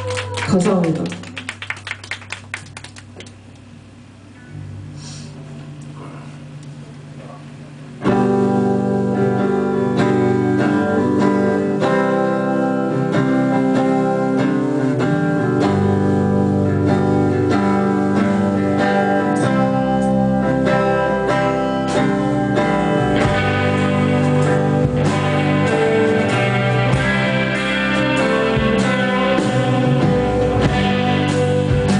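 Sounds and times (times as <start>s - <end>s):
live band playing guitar song: 8.0s - 31.9s.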